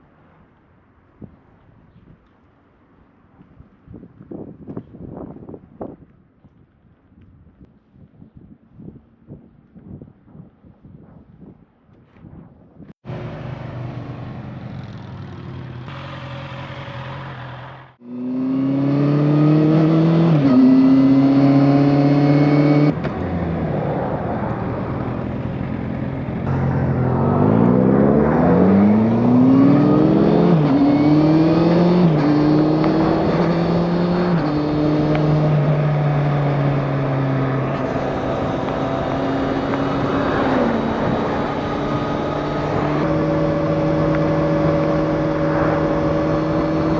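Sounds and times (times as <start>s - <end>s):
motorcycle engine shifting gears: 13.0s - 46.9s.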